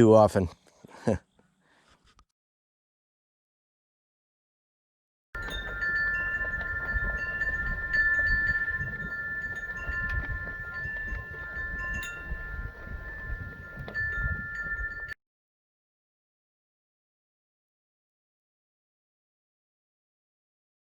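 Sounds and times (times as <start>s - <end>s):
wind chimes ringing: 5.4s - 15.2s.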